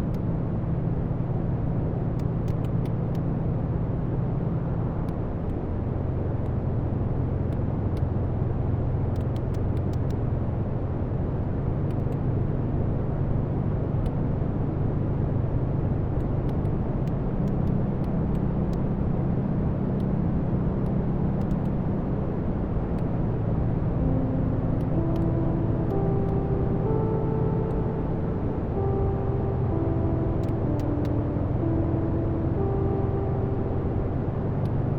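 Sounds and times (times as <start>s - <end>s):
soft held musical notes: 14.0s - 34.9s.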